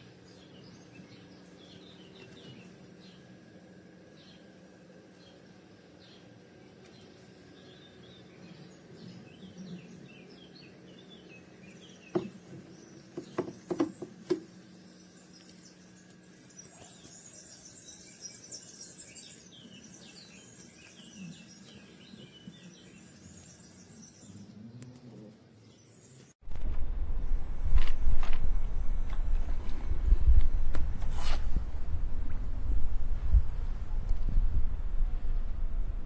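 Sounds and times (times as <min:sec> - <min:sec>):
small birds chirping: 0:00.0 - 0:26.4.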